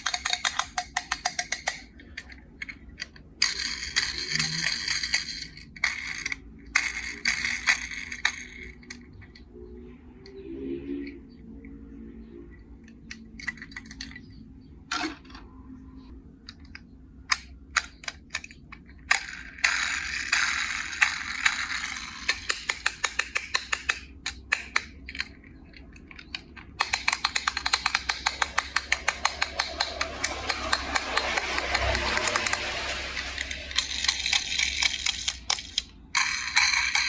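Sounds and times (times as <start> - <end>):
plastic toy parts clicking: 0.0 - 9.5, 12.8 - 14.3, 16.4 - 37.0
rattling hiss: 26.8 - 37.0.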